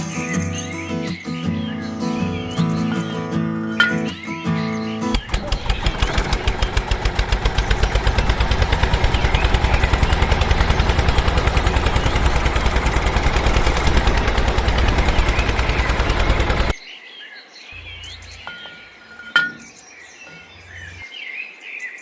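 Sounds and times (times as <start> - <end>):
small engine puttering: 5.2 - 16.7.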